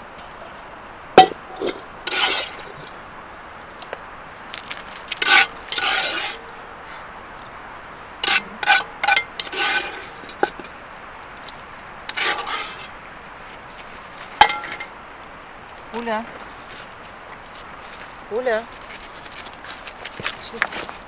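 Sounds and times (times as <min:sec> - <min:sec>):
metal utensil scraping a pot: 0:01.2 - 0:03.0, 0:05.1 - 0:06.7, 0:08.2 - 0:10.7, 0:12.1 - 0:13.0, 0:14.2 - 0:14.9.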